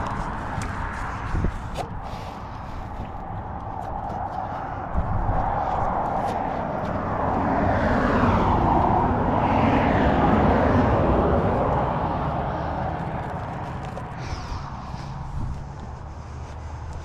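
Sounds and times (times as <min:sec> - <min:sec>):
vehicle passing by: 0:00.0 - 0:17.0.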